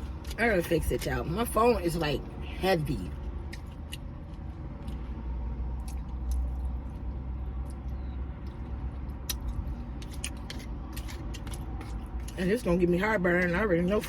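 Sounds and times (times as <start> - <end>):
person chewing food: 0.0 - 0.4, 3.1 - 12.4
low rumble in car cabin: 0.0 - 14.0.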